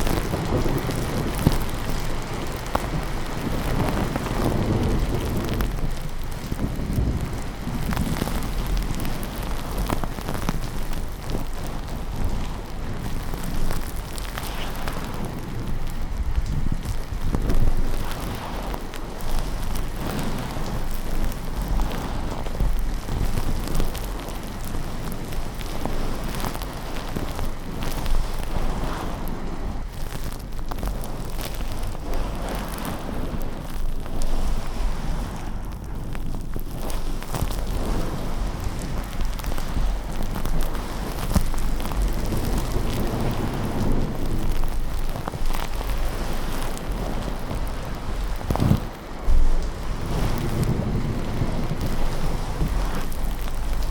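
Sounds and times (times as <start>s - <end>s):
low thunder rumble: 0.0s - 53.9s
rain hiss: 0.0s - 53.9s
sharp ticks and crackles: 0.0s - 53.9s.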